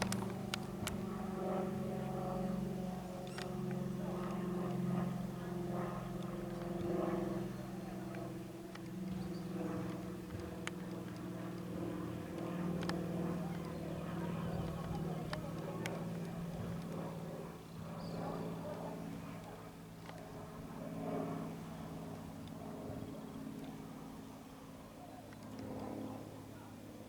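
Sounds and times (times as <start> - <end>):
sharp clicks: 0.0 - 1.0
propeller plane engine droning: 0.0 - 27.0.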